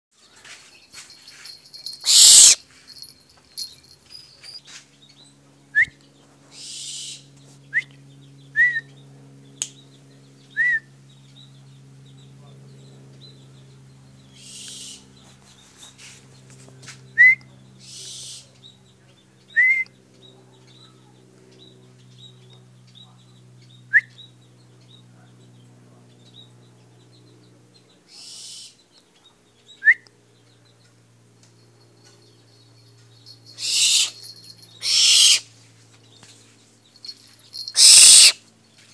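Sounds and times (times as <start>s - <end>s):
owl calling: 2.0s - 2.6s, 33.5s - 35.5s, 37.6s - 38.4s
owl hissing: 2.0s - 2.6s, 6.6s - 7.2s, 14.4s - 15.1s, 17.8s - 18.4s, 28.1s - 28.8s, 33.6s - 34.2s, 34.8s - 35.5s, 37.7s - 38.4s.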